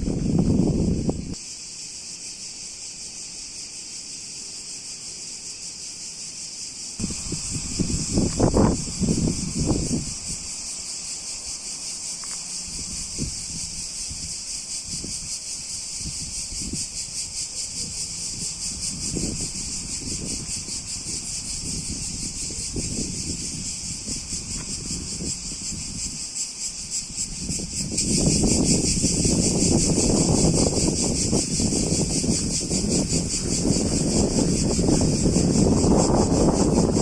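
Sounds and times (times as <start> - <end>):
wind buffeting microphone: 0.0 - 1.4, 7.0 - 10.6, 12.6 - 37.0
crickets trilling: 0.0 - 37.0.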